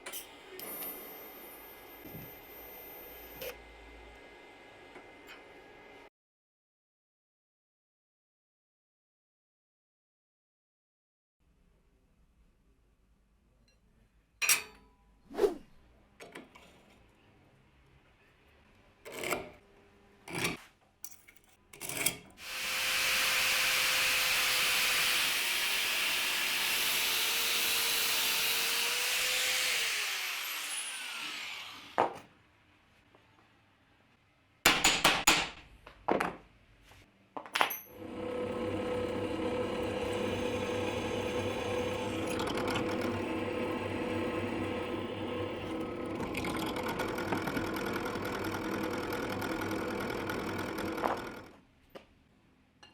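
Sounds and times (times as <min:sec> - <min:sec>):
power tool cutting wood: 0:22.4 - 0:32.0, 0:38.0 - 0:51.5
machine motor humming: 0:38.0 - 0:51.4.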